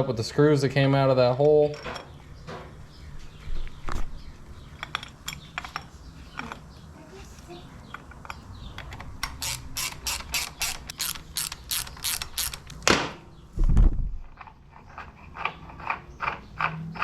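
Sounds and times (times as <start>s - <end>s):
ratchet wrench clicking: 9.2s - 12.8s.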